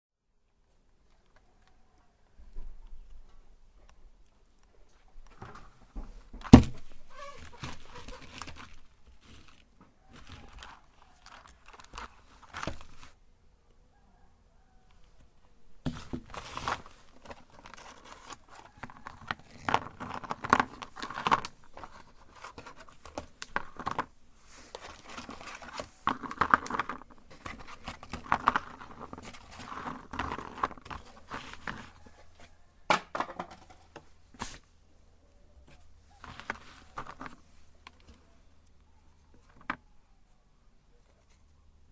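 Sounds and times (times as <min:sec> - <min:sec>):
rustles and clicks: 0:04.8 - 0:13.2, 0:14.9 - 0:32.6, 0:35.6 - 0:39.9
cookies crunching in meat grinder: 0:17.4 - 0:24.1, 0:24.8 - 0:31.9.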